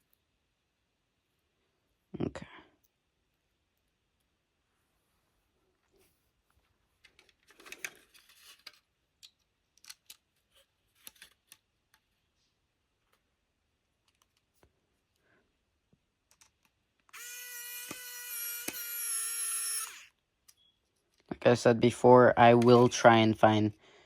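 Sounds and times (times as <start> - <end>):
plastic parts clicking and scraping: 7.0 - 12.2, 14.0 - 15.2, 16.2 - 17.2, 22.5 - 23.0
electric tool motor whining: 17.1 - 20.1.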